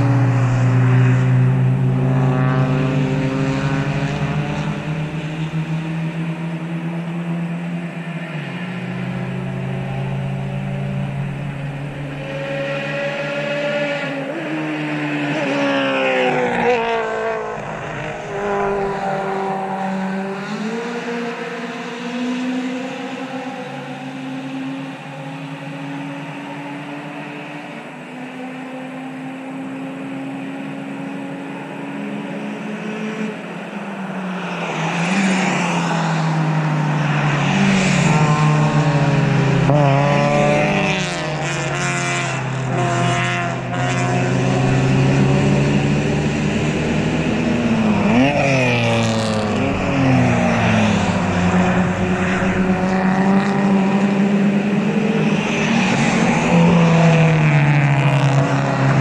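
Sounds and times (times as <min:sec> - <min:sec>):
distant engine drone: 0:00.0 - 0:19.9, 0:36.3 - 0:59.0
car engine revving: 0:00.0 - 0:28.7, 0:29.3 - 0:59.0
race car engines passing: 0:00.0 - 0:59.0.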